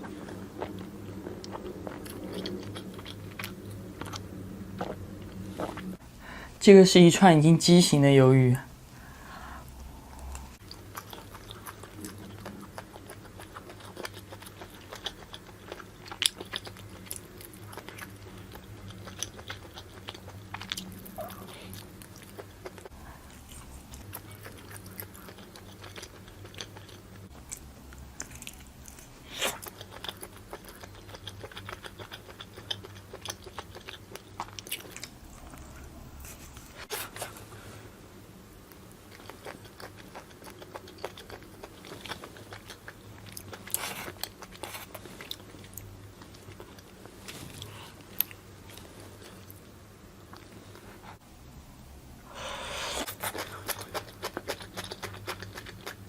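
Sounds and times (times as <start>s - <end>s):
person chewing and biting squid: 39.1s - 46.9s, 52.6s - 56.0s.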